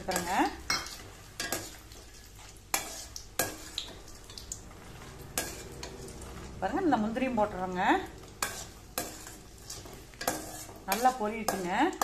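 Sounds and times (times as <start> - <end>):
lentils sizzling in hot oil: 0.0 - 12.0.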